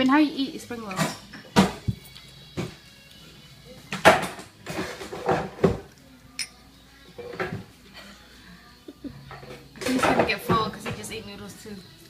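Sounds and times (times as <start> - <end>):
dishes and utensils clattering: 0.8 - 1.9, 3.9 - 7.7, 9.2 - 11.2.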